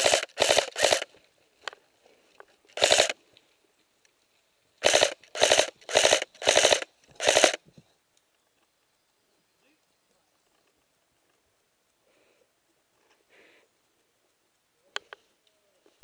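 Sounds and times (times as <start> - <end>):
airsoft gun firing bursts: 0.0 - 1.1, 2.8 - 3.2, 4.8 - 7.6.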